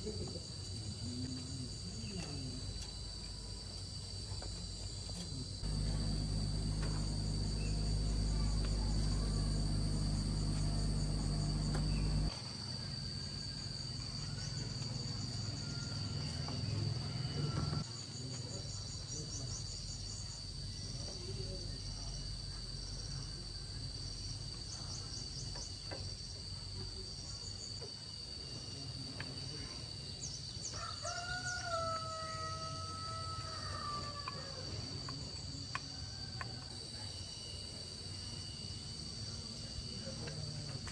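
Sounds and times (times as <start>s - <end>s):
crickets chirping: 0.0s - 40.9s
low hum: 5.6s - 12.4s.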